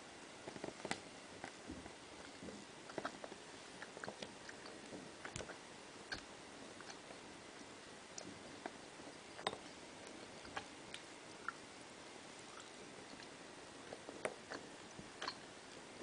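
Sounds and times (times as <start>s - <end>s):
faint steady hiss: 0.0s - 16.0s
wet mouth clicks and smacks: 3.8s - 7.1s, 15.2s - 15.4s.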